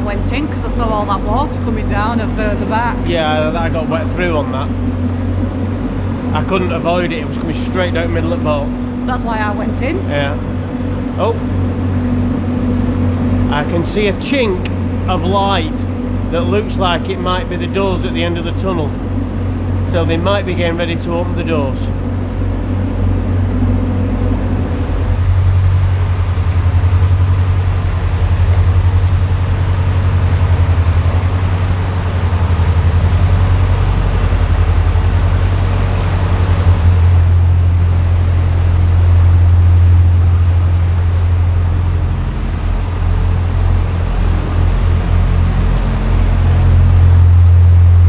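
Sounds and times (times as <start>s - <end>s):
boat engine throbbing drone: 0.0s - 48.0s.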